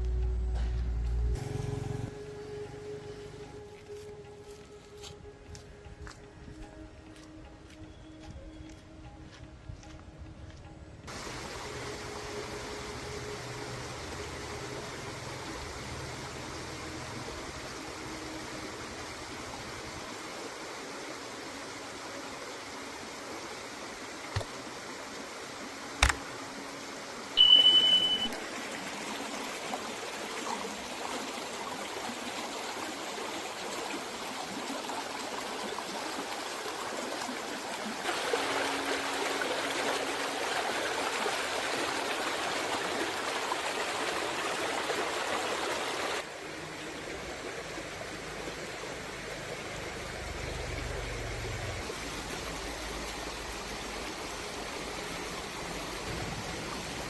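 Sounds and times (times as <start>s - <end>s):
steady hissing rushing noise: 11.1s - 27.4s
sharp click: 26.0s - 26.2s
short high beep: 27.4s - 28.4s.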